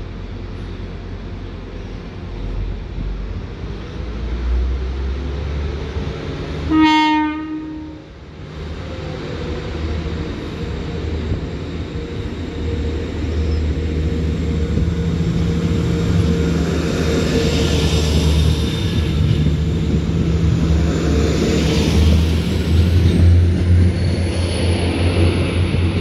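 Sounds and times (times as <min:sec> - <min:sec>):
train engines and wheels rumbling: 0:00.0 - 0:26.0
train horn note: 0:06.7 - 0:08.0.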